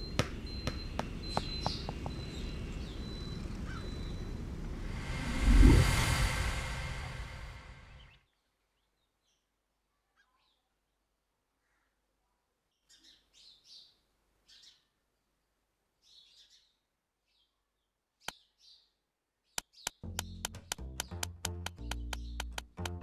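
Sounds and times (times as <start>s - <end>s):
faint birds chirping: 0.0s - 22.7s
sharp clicks: 19.6s - 23.0s.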